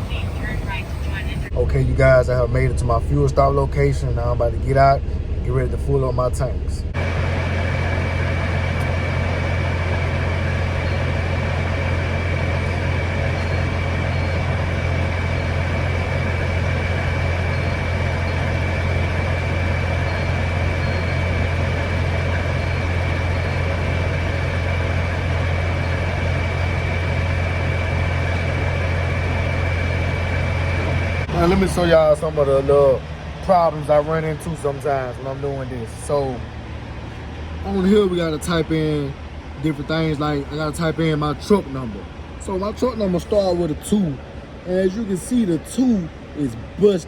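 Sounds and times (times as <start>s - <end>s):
diesel engine idling: 0.0s - 47.0s.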